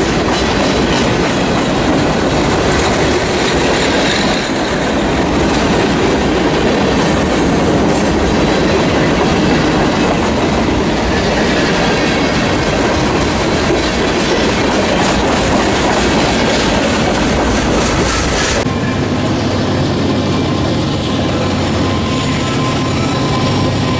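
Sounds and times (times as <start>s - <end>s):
wheels clicking over rail joints: 0.0s - 18.7s
freight train cars rolling: 0.0s - 23.9s.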